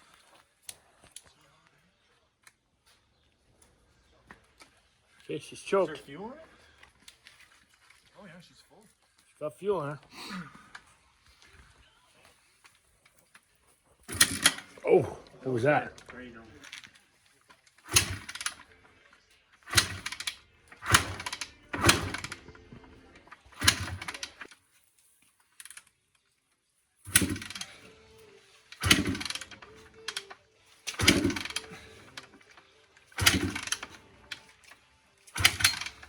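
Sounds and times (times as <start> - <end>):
dirt bike kick-start attempts: 14.1 - 16.9, 17.7 - 18.8, 19.6 - 24.6, 27.1 - 28.0, 28.6 - 36.0.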